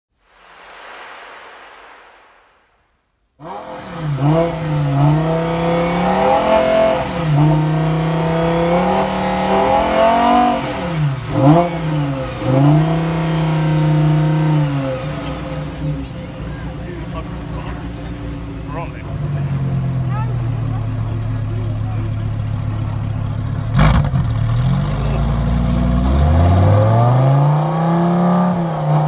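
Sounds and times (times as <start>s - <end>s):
soft hiss: 0.1s - 3.4s
sports car engine revving: 3.4s - 29.0s.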